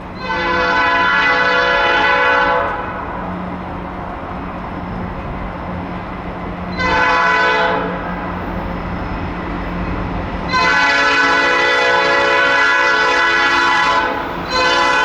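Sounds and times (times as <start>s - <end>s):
passing train rumble: 0.0s - 15.0s
locomotive air horn blasts: 0.2s - 3.1s, 6.7s - 8.0s, 10.5s - 15.0s.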